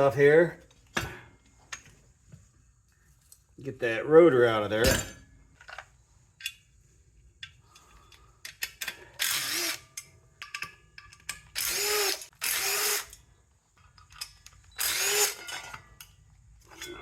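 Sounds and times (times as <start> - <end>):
small metal clicks: 7.4 - 9.1, 13.1 - 17.0.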